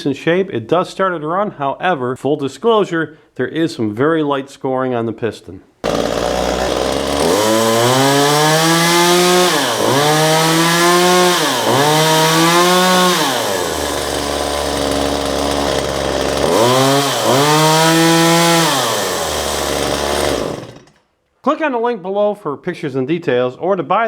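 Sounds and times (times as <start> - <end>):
chainsaw engine revving: 5.8 - 21.0.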